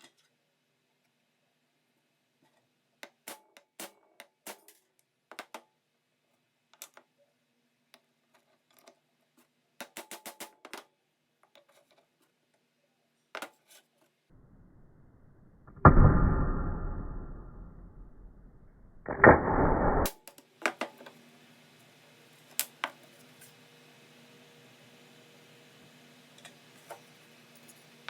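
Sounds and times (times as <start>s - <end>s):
loud rushing noise: 15.8s - 20.1s.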